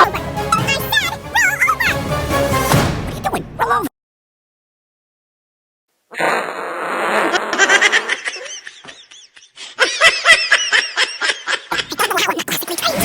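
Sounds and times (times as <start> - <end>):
high-pitched cartoon laughter: 1.0 - 2.0, 6.2 - 12.9.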